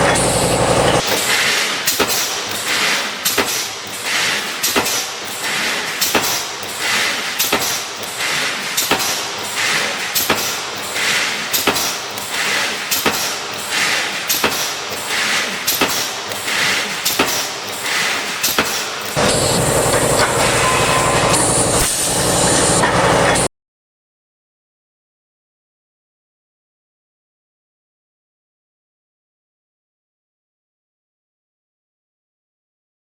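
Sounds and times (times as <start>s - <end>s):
welding machine metallic clack: 0.0s - 23.5s
hissing noise: 19.2s - 23.5s.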